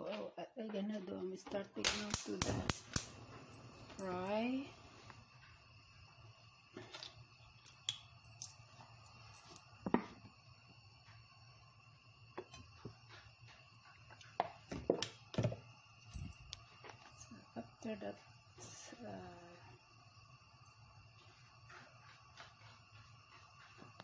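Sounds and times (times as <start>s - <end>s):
low hum: 2.4s - 14.4s.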